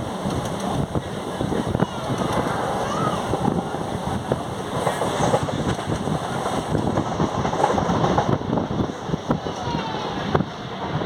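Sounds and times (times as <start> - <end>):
train wheels clattering: 0.0 - 8.6
wind noise: 0.0 - 11.0.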